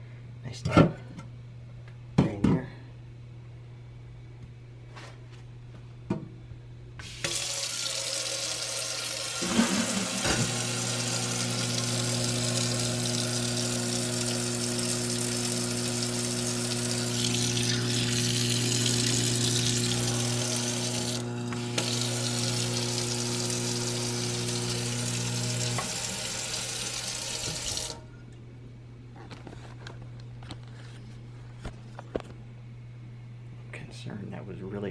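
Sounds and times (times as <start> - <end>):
garbage disposal humming: 6.0 - 33.0
garbage disposal clatter: 9.4 - 11.6
tap running into sink: 27.2 - 27.9.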